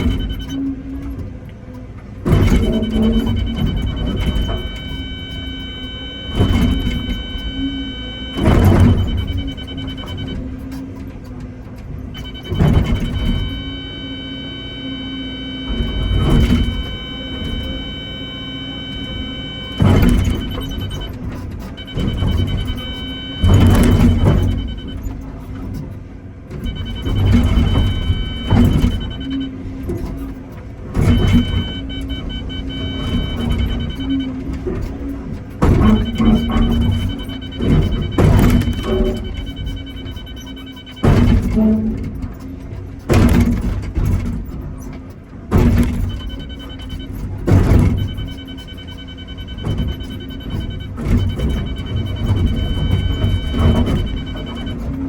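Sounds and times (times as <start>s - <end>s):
diesel engine under load: 0.0s - 55.0s
hydraulic whine: 0.0s - 55.0s
high hydraulic whine: 2.3s - 11.0s, 12.1s - 25.8s, 26.5s - 30.3s
excavator bucket striking rock: 6.3s - 10.7s, 19.1s - 25.8s, 34.7s - 40.3s, 41.0s - 44.8s, 45.5s - 48.3s.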